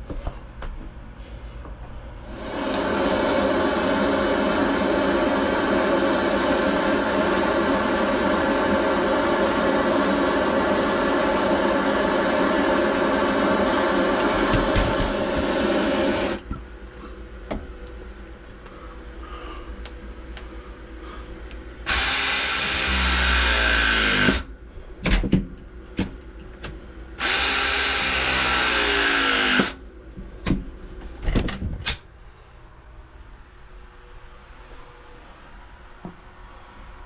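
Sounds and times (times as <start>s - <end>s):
loud steady noise: 2.2s - 16.5s
handheld power tool running: 12.3s - 16.4s, 21.9s - 24.5s, 27.2s - 29.8s.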